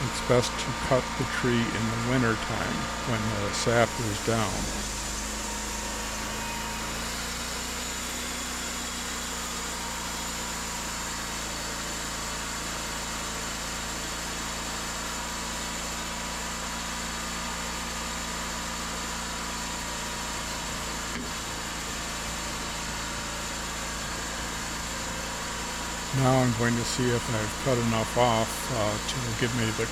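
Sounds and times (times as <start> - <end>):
sawmill engine drone: 0.0 - 15.7, 19.8 - 29.9.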